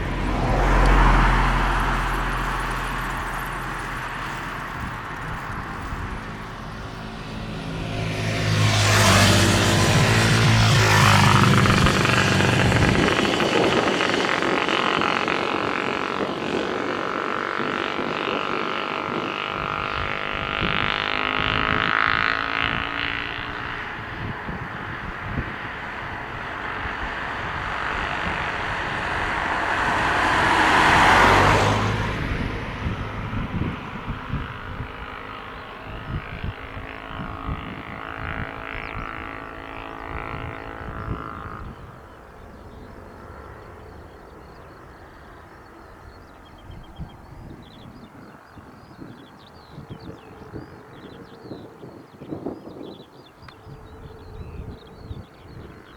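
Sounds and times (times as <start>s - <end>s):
jet engines roaring and whining: 0.0s - 20.8s, 23.5s - 46.1s.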